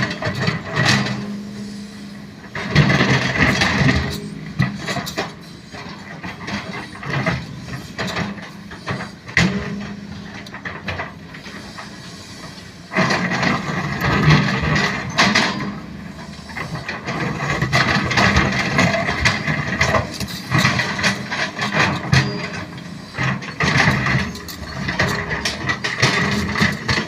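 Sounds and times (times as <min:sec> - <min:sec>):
excavator engine under load: 0:00.0 - 0:27.0
metallic clattering and scraping: 0:13.0 - 0:27.0.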